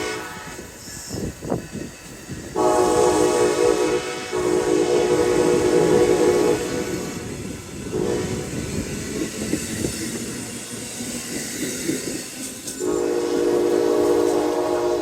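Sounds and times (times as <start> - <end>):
train horn chord: 0.0 - 0.7, 2.6 - 7.3, 7.9 - 8.5, 12.8 - 15.0
train rumbling and clattering: 0.0 - 15.0.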